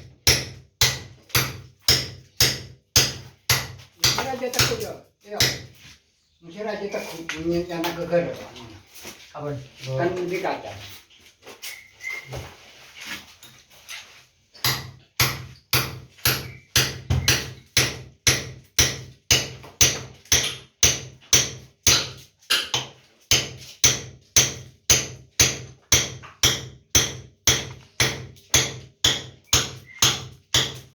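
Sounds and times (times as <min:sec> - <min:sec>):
hammering on a wall: 0:00.0 - 0:05.9, 0:14.6 - 0:30.9.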